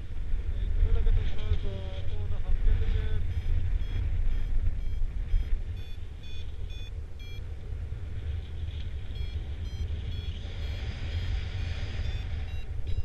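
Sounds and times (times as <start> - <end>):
wind on microphone: 0.0 - 13.0
variometer short pitched beeps: 3.1 - 7.5, 9.1 - 10.8, 11.9 - 13.0.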